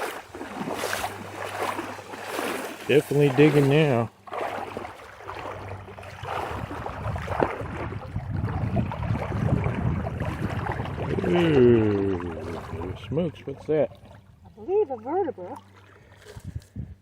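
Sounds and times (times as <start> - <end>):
sand and gravel shifting: 0.0 - 4.6
digging in shallow water: 0.0 - 17.0.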